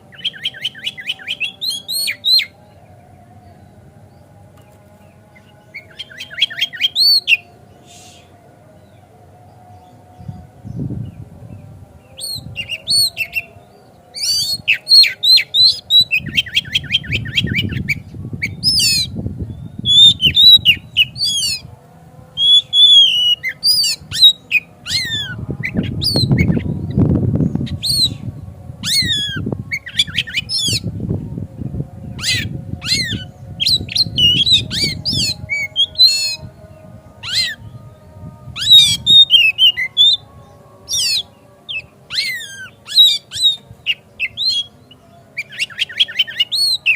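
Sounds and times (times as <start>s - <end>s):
bird singing whistles and chatter: 0.1s - 2.6s, 5.4s - 9.0s, 12.1s - 21.7s, 22.4s - 30.9s, 32.1s - 36.5s, 38.5s - 46.9s.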